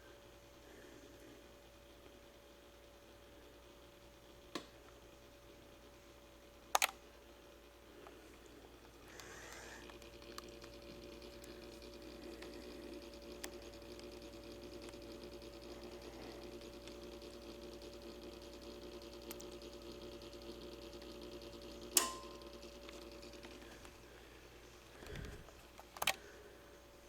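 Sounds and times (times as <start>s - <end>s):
clock mechanism humming and ticking: 0.0s - 27.0s
sharp click with ring: 22.0s - 22.4s.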